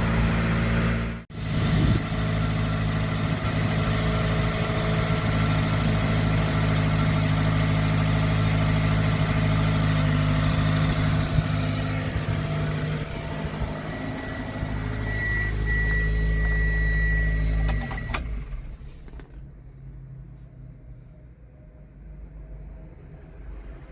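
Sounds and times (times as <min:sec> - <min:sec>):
truck engine idling: 0:00.0 - 0:22.6
engine clicks: 0:14.9 - 0:19.5.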